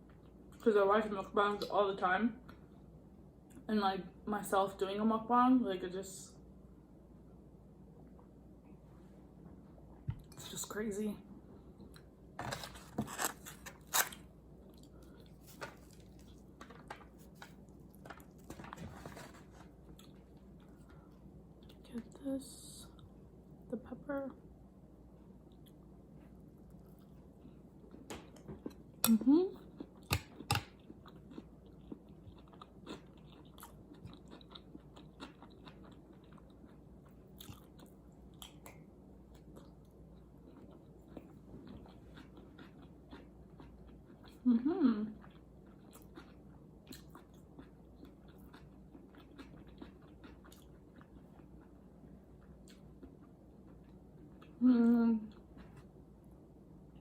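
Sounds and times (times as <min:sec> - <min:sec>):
person chewing crunchy food: 0:11.8 - 0:21.8, 0:25.4 - 0:44.5, 0:45.2 - 0:54.6.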